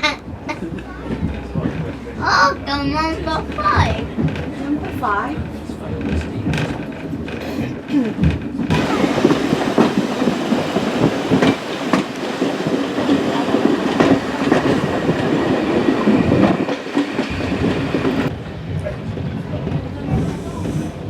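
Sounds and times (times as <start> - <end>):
railway carriage rumbling: 0.0 - 21.0
wheels clicking over rail joints: 3.1 - 18.3.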